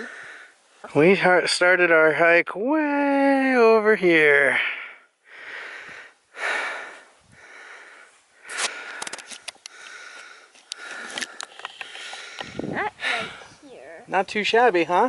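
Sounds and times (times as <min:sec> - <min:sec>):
person breathing hard: 0:00.0 - 0:00.6, 0:04.6 - 0:13.7
small clicks and scuffs: 0:08.5 - 0:12.5.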